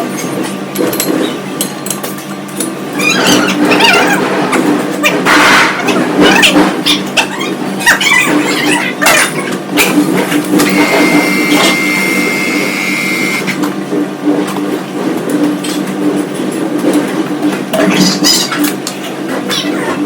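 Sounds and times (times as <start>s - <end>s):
high mechanical whine: 7.6s - 15.9s
metal lathe humming: 10.6s - 13.6s.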